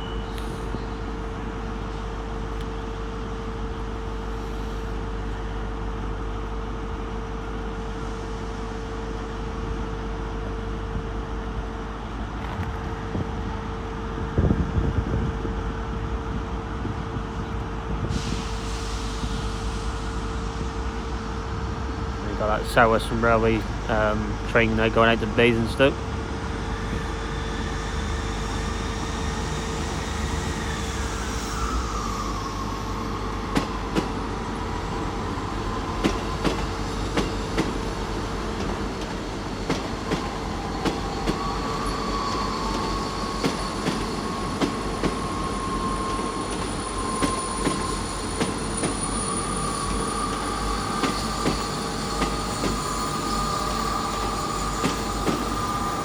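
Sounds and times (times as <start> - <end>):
train pulling out: 0.0 - 56.0
train wheels squealing: 26.4 - 56.0.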